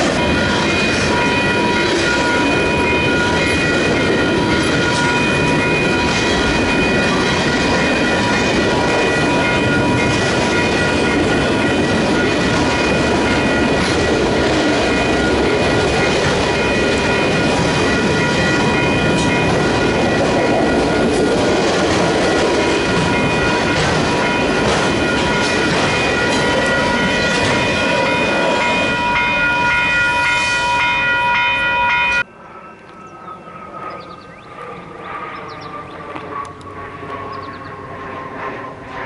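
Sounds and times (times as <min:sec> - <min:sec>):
clickety-clack of wheels: 0:00.0 - 0:29.0
train wheels rumbling on rails: 0:00.0 - 0:32.3
high-pitched whine: 0:00.0 - 0:39.0.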